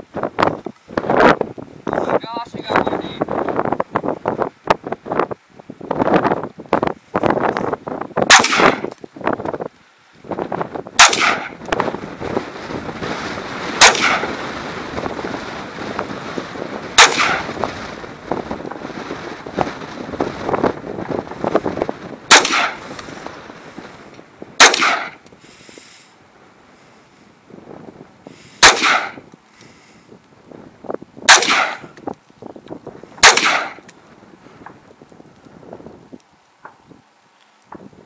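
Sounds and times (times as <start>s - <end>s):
rifle shots: 8.3s - 8.9s, 11.0s - 11.6s, 13.8s - 14.7s, 16.9s - 18.0s, 22.3s - 22.9s, 24.6s - 25.3s, 28.6s - 29.3s, 31.3s - 31.9s, 33.2s - 33.9s.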